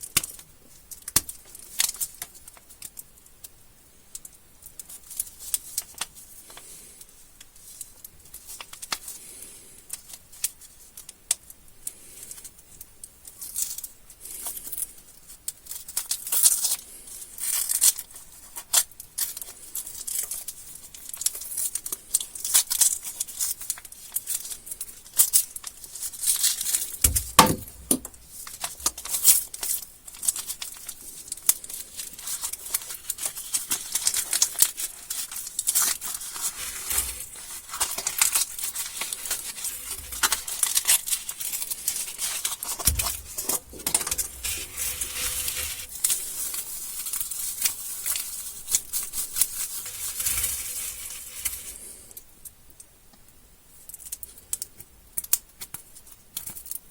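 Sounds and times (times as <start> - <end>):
candy wrappers crinkling: 17.4 - 52.2
single knock: 27.0 - 28.2.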